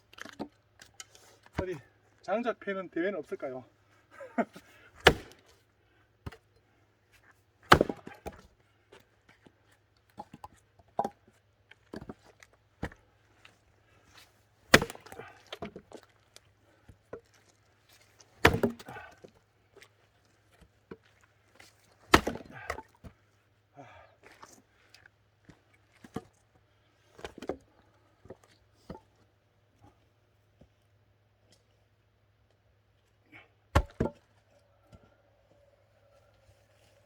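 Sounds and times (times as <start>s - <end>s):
axe splitting firewood: 4.4s - 6.6s, 7.6s - 8.6s, 10.1s - 13.1s, 14.2s - 16.2s, 18.0s - 19.4s, 21.6s - 23.2s, 27.1s - 29.2s, 33.7s - 35.1s.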